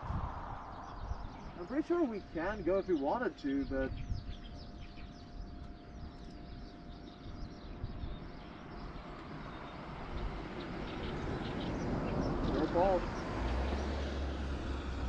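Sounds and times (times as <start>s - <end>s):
vehicle rumble: 0.0s - 2.6s, 8.4s - 15.0s
small birds chirping: 0.0s - 15.0s.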